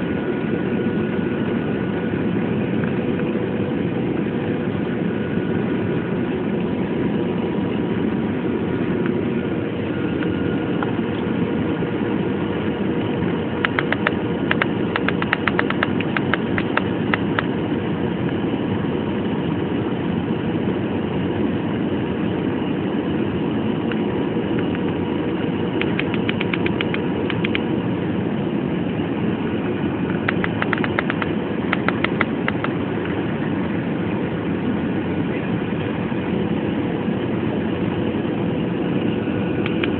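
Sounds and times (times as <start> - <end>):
faint steady hum: 0.0 - 39.9
rapid clicks: 13.6 - 17.5, 25.8 - 27.6, 30.1 - 32.8.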